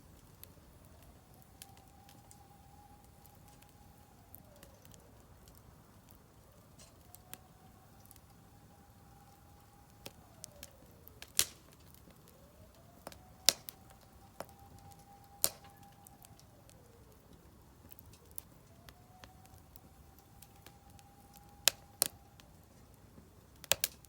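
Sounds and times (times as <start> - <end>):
wood fire crackling: 0.0 - 24.0
loud fire pops: 3.0 - 24.0.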